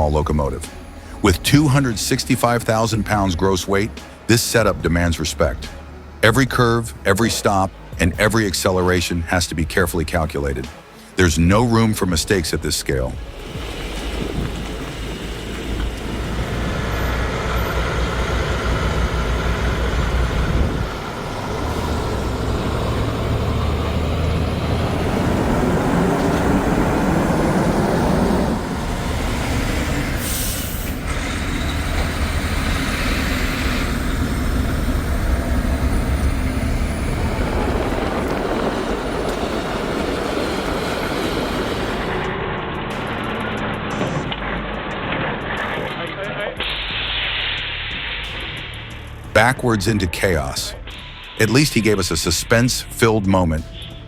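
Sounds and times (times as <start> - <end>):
truck diesel engines under load: 0.0 - 54.0
sharp hiss of air: 46.6 - 49.2.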